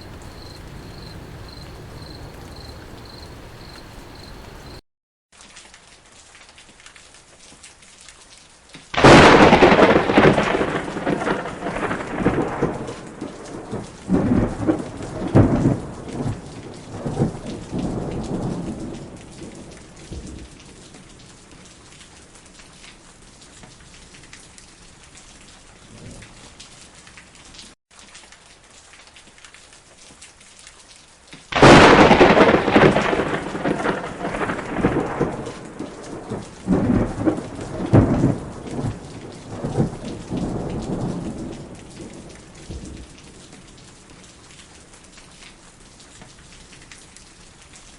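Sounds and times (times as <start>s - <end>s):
heavy rain: 0.0s - 4.8s, 5.4s - 47.9s
thunderclaps with rolling rumbles: 0.0s - 4.8s, 9.0s - 20.9s, 31.6s - 43.5s.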